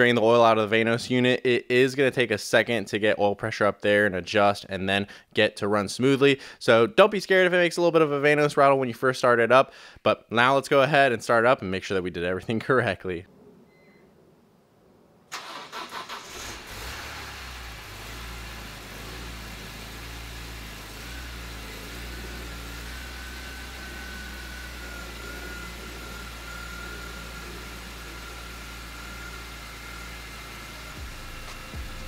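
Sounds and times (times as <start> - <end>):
car engine starting and idling: 15.3 - 32.0
faint steady whine: 19.5 - 32.0.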